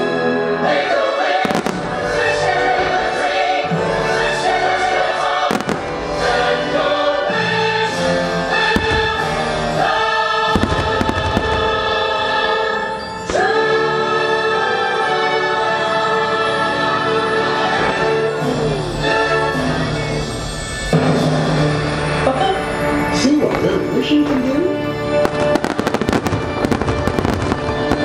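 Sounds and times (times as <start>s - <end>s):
choir and orchestra playing: 0.0s - 28.0s
firework shells bursting: 8.8s - 9.9s, 10.5s - 12.1s, 25.2s - 28.0s.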